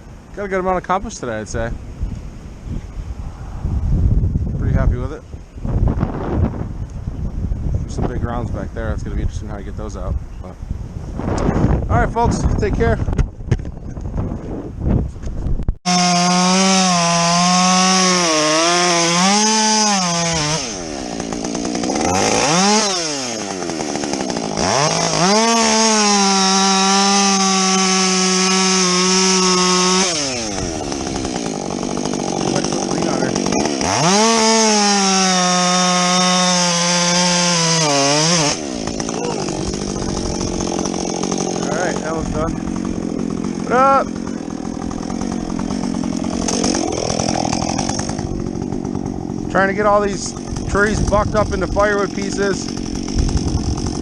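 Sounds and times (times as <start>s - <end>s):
chainsaw cutting logs: 15.9s - 54.0s.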